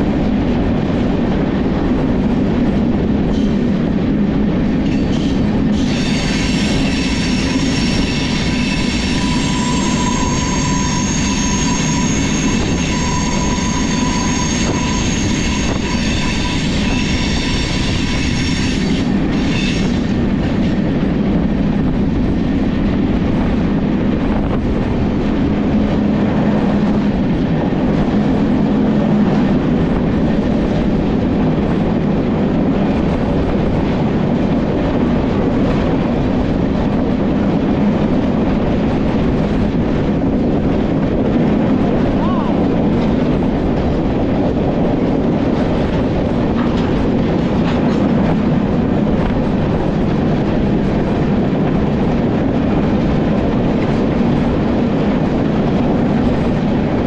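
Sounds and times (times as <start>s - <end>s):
train wheels rumbling on track: 0.0s - 57.0s
train wheel squeal: 3.2s - 3.7s, 4.8s - 20.8s.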